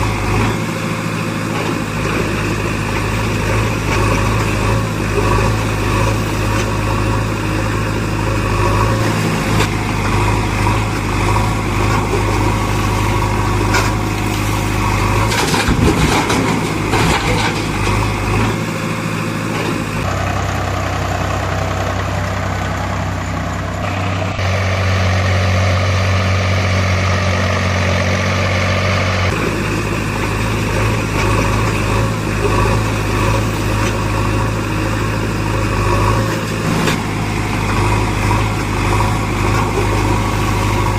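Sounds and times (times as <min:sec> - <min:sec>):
heavy machinery diesel engines: 0:00.0 - 0:40.9.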